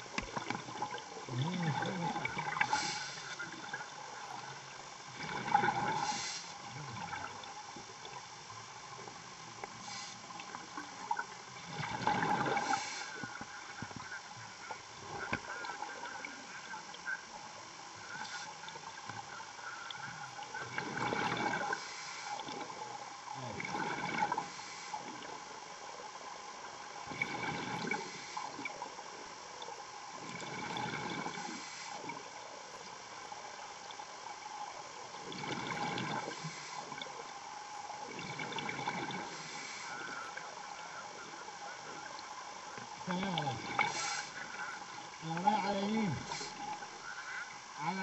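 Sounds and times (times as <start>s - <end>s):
exhaled air bubbling underwater: 0.0s - 48.0s
faint steady hum: 0.0s - 48.0s.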